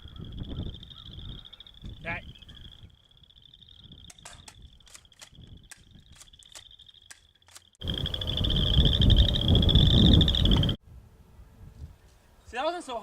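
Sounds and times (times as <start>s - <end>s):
crickets trilling: 0.0s - 10.8s.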